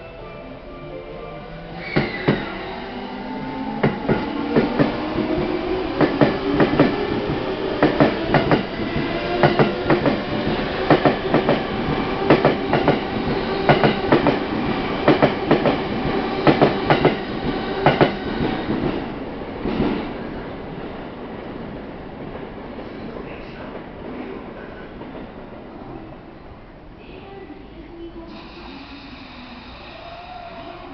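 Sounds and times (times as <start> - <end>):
train wheels clacking over rail joints: 3.8 - 14.4, 15.1 - 19.0.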